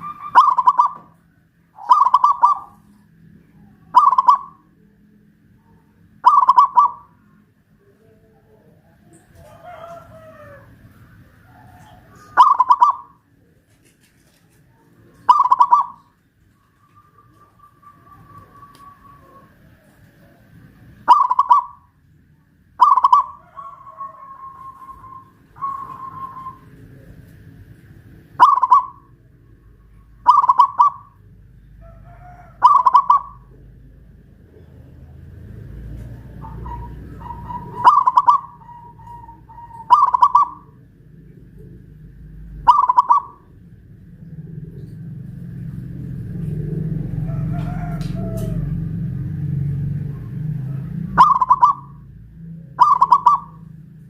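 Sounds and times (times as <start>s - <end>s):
dove cooing: 0.0s - 21.9s, 22.8s - 54.0s
low rumble: 40.6s - 51.3s.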